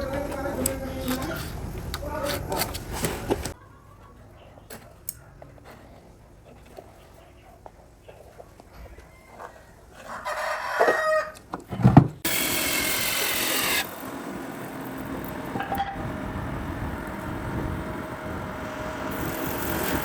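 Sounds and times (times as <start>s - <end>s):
steady mechanical hum: 0.0s - 9.0s, 12.1s - 20.0s
rooster crowing: 8.8s - 11.5s
loud hissing: 12.3s - 20.0s.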